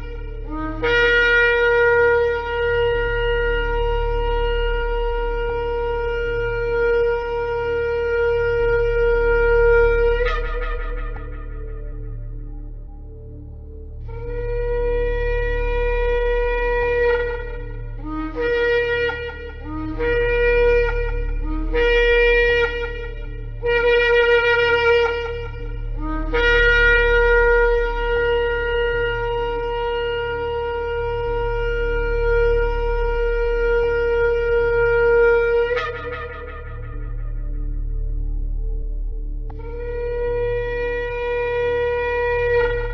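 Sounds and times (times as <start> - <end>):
steady low hum: 0.0 - 42.9
ram's horn blasts: 14.1 - 38.6.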